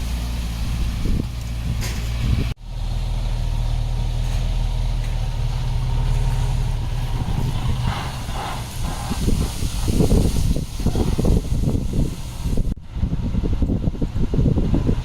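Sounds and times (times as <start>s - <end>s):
heavy diesel engine running: 0.0s - 15.0s
rough rattling noise: 4.2s - 12.8s.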